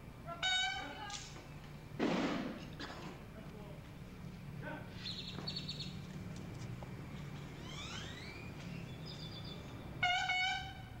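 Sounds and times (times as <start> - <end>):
low steady hum: 0.0 - 11.0
birds chirping: 4.9 - 6.2, 7.0 - 10.4
rising whistled bird calls: 5.0 - 6.0, 7.6 - 10.4.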